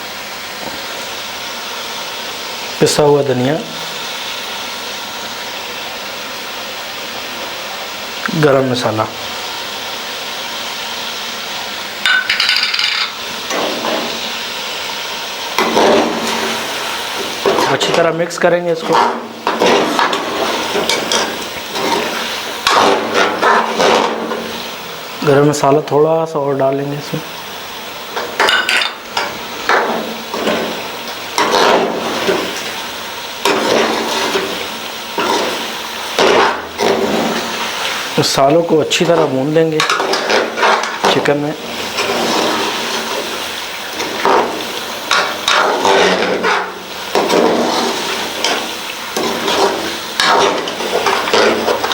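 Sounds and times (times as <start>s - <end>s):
chicken frying with hiss: 0.0s - 51.9s
utensil scraping a pan: 18.8s - 24.6s, 28.1s - 32.8s, 33.4s - 38.3s, 38.9s - 51.9s.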